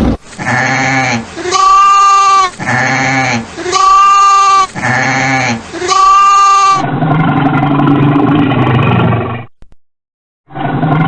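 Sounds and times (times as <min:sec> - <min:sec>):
livestock bleating: 0:00.4 - 0:06.8
animal roaring low: 0:06.8 - 0:09.5, 0:10.5 - 0:11.0.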